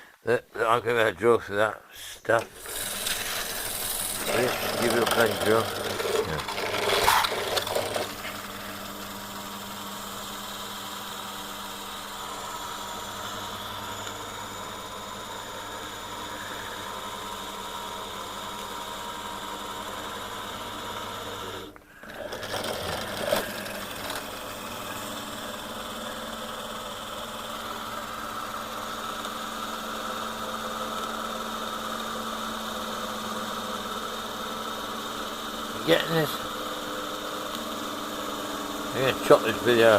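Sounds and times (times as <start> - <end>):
electric drill boring into steel: 2.4 - 39.9.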